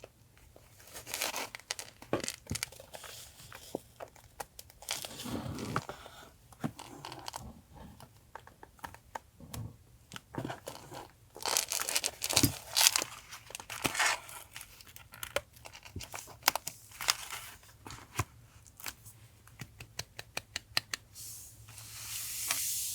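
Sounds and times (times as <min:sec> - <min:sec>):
paper crinkling and rustling: 0:00.7 - 0:06.2, 0:10.4 - 0:19.0
small taps and clicks: 0:19.5 - 0:21.0.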